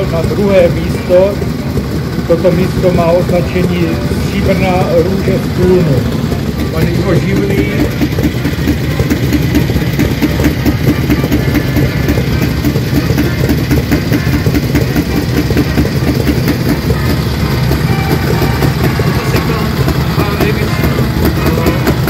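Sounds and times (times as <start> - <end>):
motorcycle engines idling: 0.0 - 22.0.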